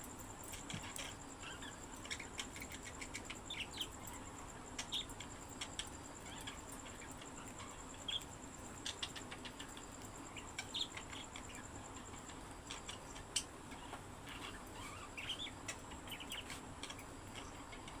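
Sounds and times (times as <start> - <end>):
faint high-pitched whine: 0.0 - 18.0
budgerigars chirping: 12.2 - 18.0.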